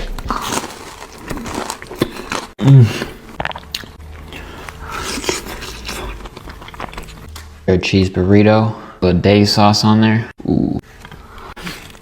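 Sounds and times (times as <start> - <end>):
biting and chewing food: 0.0 - 7.5.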